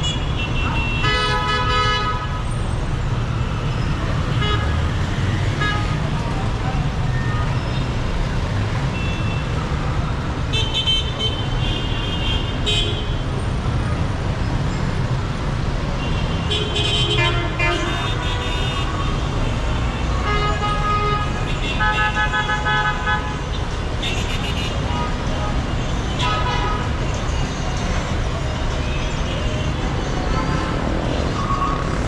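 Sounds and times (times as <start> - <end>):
rumble of car and motorbike engines: 2.3 - 10.6, 12.5 - 21.7, 26.8 - 32.0.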